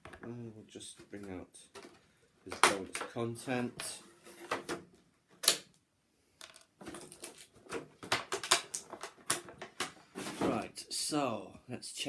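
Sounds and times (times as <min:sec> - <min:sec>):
plastic packaging clicks and rustles: 0:06.4 - 0:10.6.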